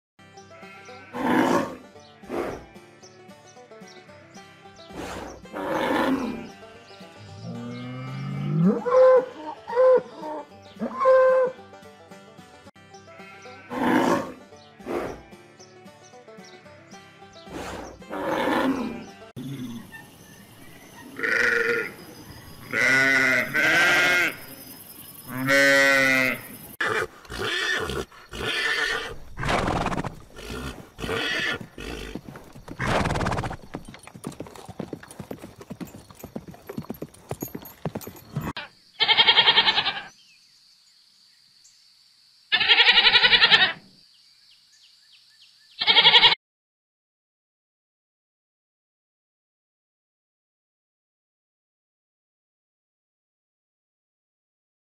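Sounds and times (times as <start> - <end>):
sheep bleating: 0.6 - 1.6, 21.2 - 22.0, 22.6 - 24.4, 25.3 - 29.1, 38.6 - 40.1, 42.5 - 43.8, 45.8 - 46.4
horses calling: 0.6 - 2.8, 13.2 - 15.3, 17.5 - 40.1, 45.8 - 46.4
cow lowing: 26.8 - 33.5.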